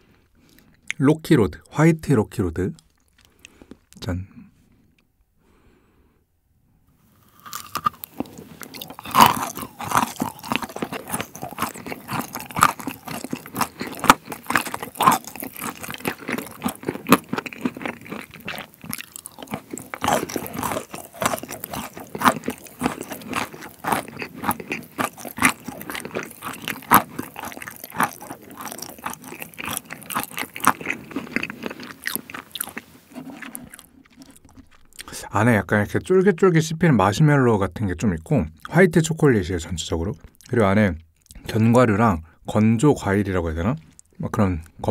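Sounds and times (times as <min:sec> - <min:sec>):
crunchy chewing: 0:02.8 - 0:04.0, 0:07.1 - 0:35.2, 0:43.8 - 0:44.2.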